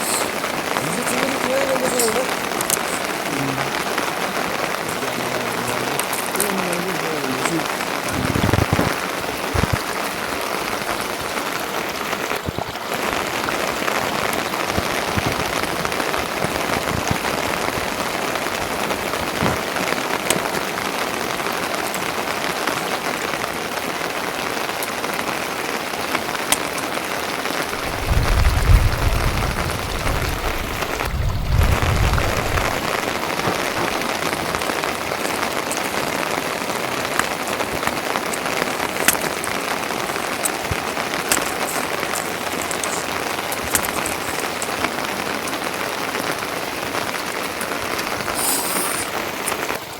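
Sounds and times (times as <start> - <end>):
steady rain hiss: 0.0 - 49.9
low rumble: 27.8 - 33.1.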